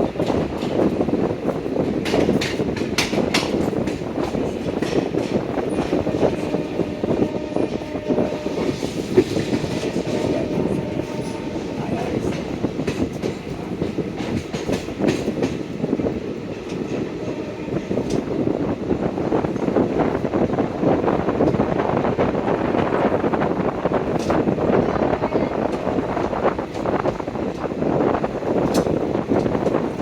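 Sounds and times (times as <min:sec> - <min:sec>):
train wheels clattering over rail joints: 0:00.0 - 0:18.4, 0:25.6 - 0:30.0.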